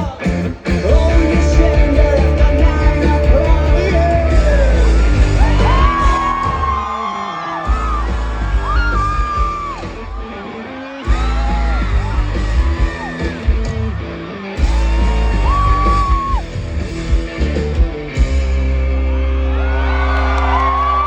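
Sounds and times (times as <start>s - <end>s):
live rock band playing: 0.0s - 6.9s, 7.6s - 20.3s
yelled sung vocals: 0.0s - 16.5s.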